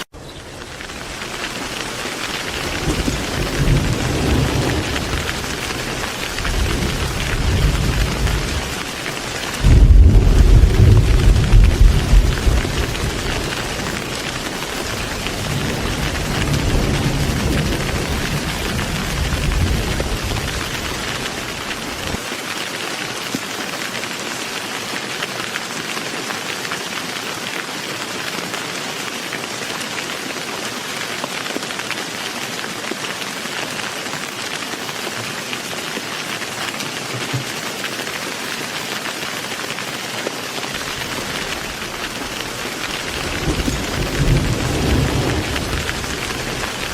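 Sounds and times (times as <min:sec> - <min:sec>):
heavy rain falling: 0:00.0 - 0:46.9
thunder rumbling: 0:00.6 - 0:22.2, 0:40.7 - 0:46.9.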